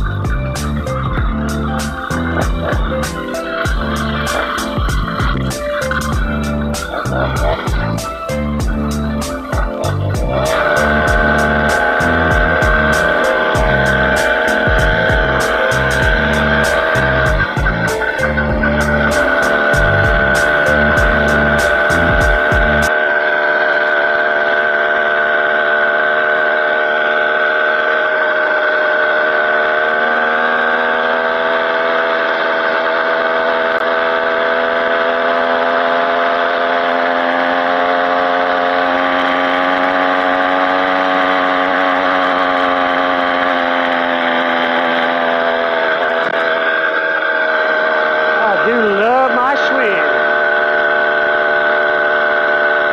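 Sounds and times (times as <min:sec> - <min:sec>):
small bicycle engine running: 0:00.0 - 0:52.9.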